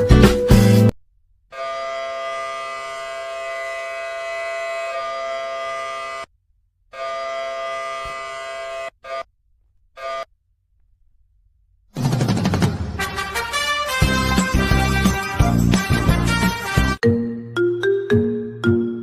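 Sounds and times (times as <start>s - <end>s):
steady horn blasts: 1.5s - 6.3s, 6.9s - 9.3s, 13.0s - 17.0s.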